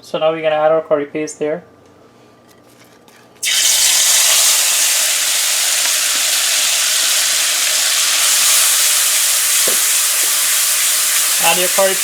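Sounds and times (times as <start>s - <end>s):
curry paste sizzling in hot oil: 3.4s - 12.0s.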